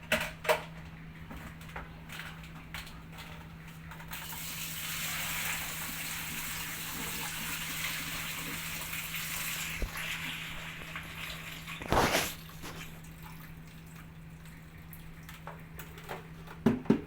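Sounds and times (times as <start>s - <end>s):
water gushing: 4.1s - 15.4s.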